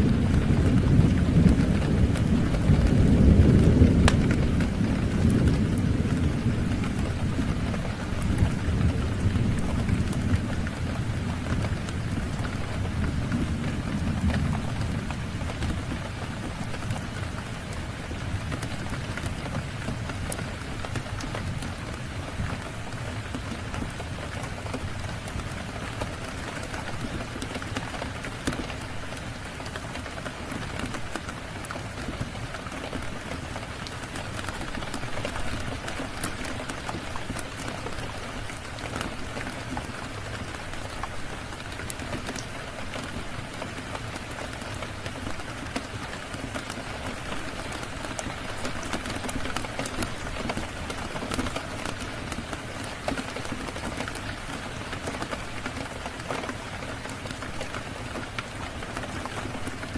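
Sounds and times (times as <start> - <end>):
sharp rain ticks: 0.0 - 59.9
steady rain hiss: 0.0 - 59.9.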